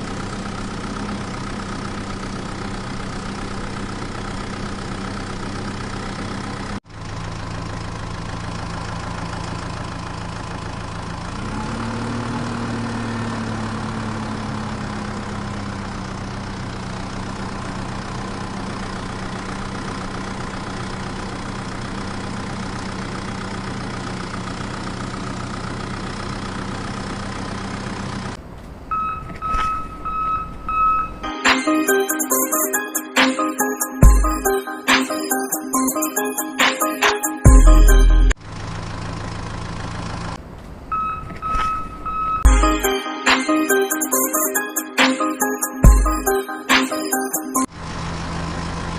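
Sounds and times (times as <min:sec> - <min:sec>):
tractor engine idling: 0:00.0 - 0:11.5, 0:13.7 - 0:28.9, 0:37.5 - 0:40.9.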